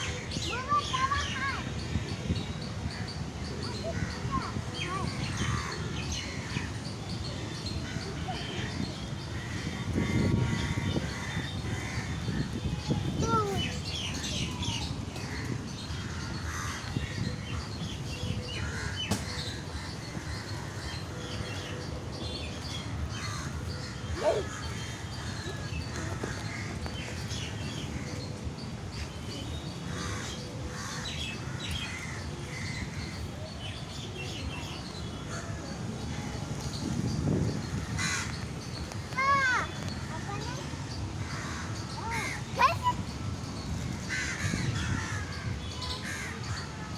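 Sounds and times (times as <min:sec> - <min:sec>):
birds chirping: 0:00.0 - 0:46.9
crows cawing: 0:37.8 - 0:38.4, 0:44.1 - 0:45.4.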